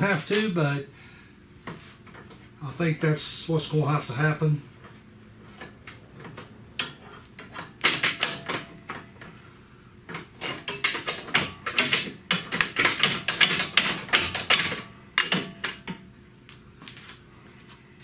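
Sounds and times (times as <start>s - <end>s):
hand tools knocking and clattering: 5.6s - 9.3s, 10.1s - 16.0s.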